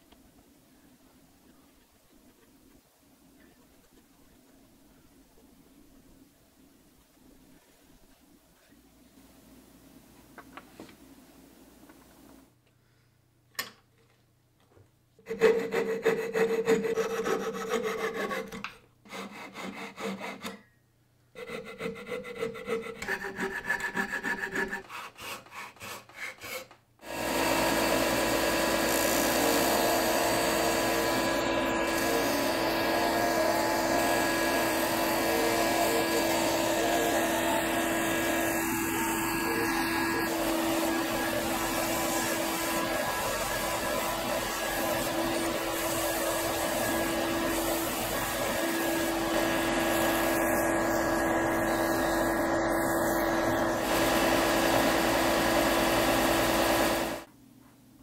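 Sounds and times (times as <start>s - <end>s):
coping saw cutting wood: 15.3s - 20.6s, 21.4s - 57.3s
belt and disc sander running: 27.0s - 57.3s.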